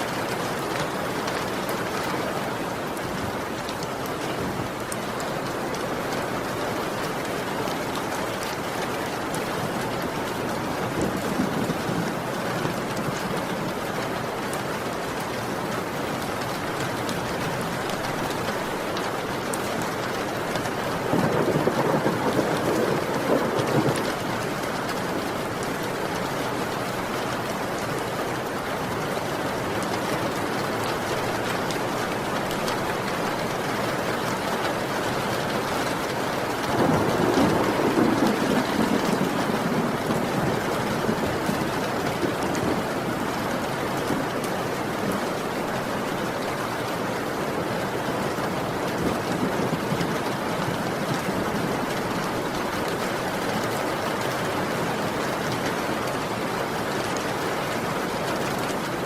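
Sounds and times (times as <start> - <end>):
heavy rain falling: 0.0 - 59.0
rolling thunder: 21.1 - 24.4, 36.4 - 43.6.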